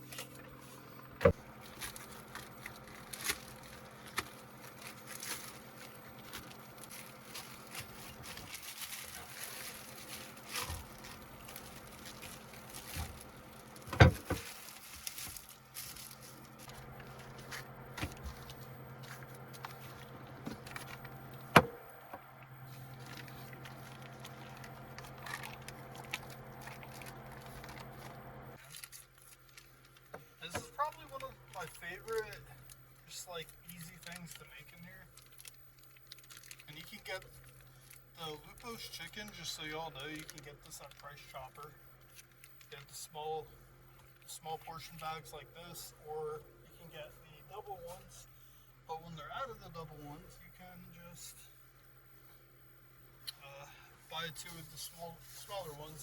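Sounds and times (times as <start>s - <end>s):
steady low hum: 0.0s - 56.0s
plastic packaging crackling: 1.4s - 21.2s, 22.7s - 32.8s, 33.4s - 41.1s.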